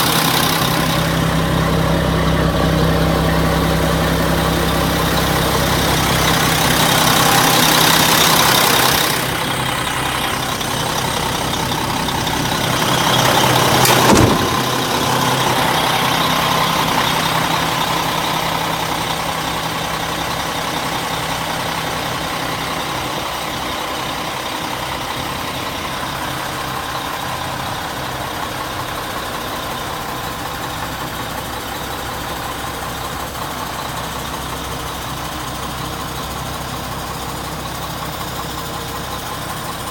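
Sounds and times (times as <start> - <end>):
diesel truck engine idling: 0.0 - 39.9
sharp knock: 13.8 - 14.8.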